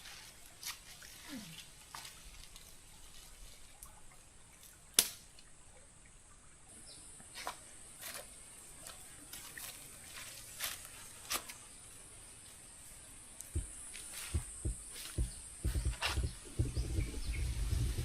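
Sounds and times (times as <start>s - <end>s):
faint steady high hiss: 0.0s - 18.0s
raindrops tapping: 13.4s - 18.0s.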